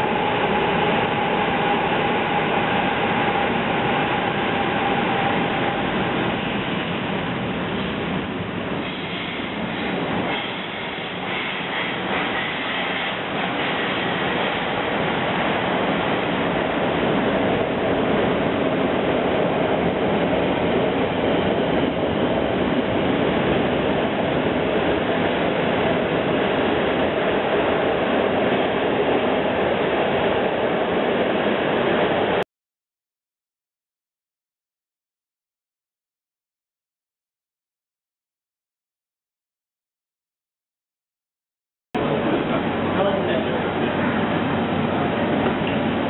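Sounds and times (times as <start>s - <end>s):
train wheels rumbling on rails: 0.0s - 32.4s, 42.0s - 46.0s.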